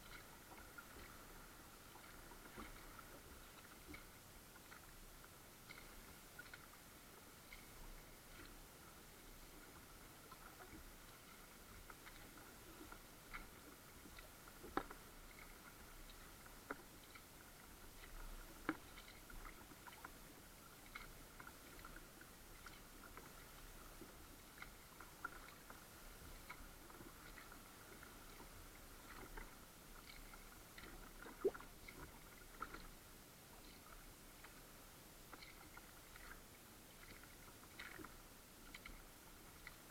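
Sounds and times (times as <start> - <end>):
water drips and splashes: 18.0 - 20.2, 24.6 - 32.9.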